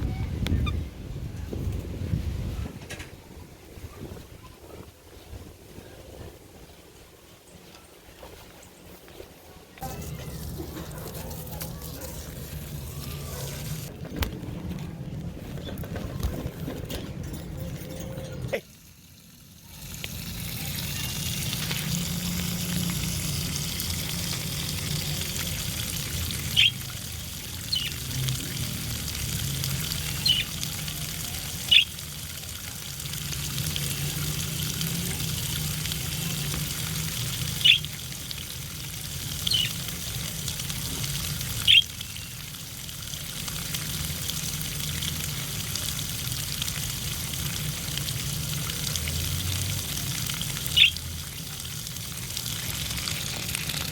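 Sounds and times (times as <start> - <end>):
water running and splashing: 9.8 - 14.0, 17.6 - 53.9
budgerigar chirping: 26.6 - 26.8, 37.6 - 37.8, 50.8 - 51.0.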